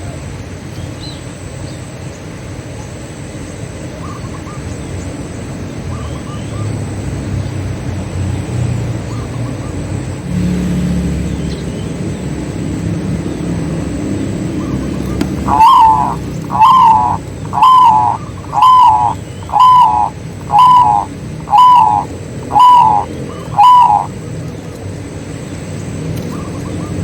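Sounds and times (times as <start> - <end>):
vehicle engine rumble: 6.4 - 15.5, 16.1 - 16.6
doves cooing: 14.4 - 24.9.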